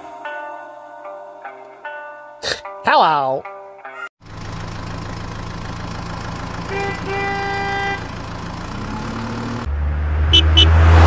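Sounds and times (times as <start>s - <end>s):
vehicle engine running: 4.2s - 11.0s
vehicle horn honking: 6.6s - 8.2s, 10.3s - 10.8s.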